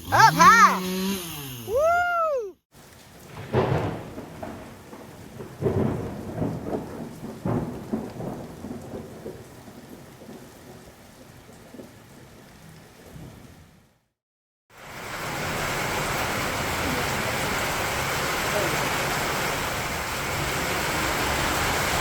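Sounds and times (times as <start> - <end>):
rain falling: 2.8 - 14.0, 14.7 - 22.0
thunder rumbling: 3.2 - 11.9.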